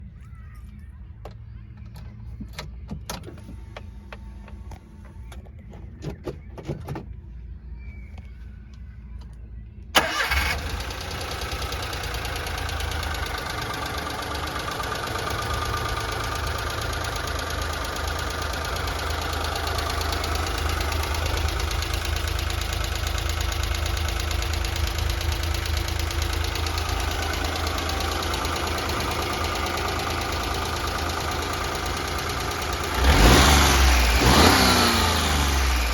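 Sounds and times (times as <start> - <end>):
car engine starting and idling: 1.2 - 7.4, 9.2 - 35.9.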